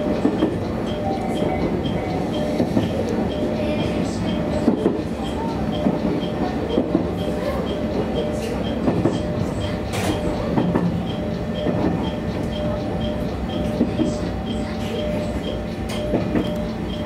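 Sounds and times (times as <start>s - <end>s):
railcar running noise: 0.0s - 17.0s
wheels clicking over rails: 0.0s - 17.0s.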